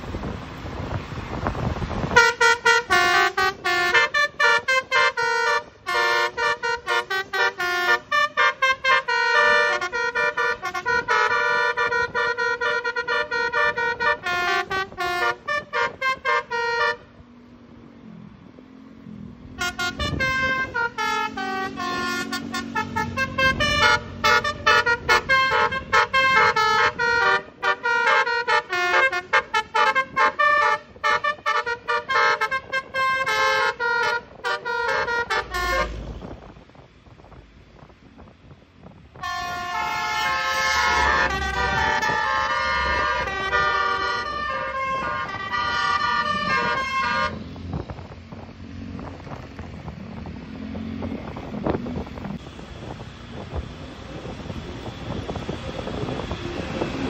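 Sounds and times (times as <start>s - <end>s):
bus engine rumble: 0.0s - 57.0s
musical air horn melody: 2.0s - 17.1s, 19.6s - 36.4s, 39.2s - 47.6s.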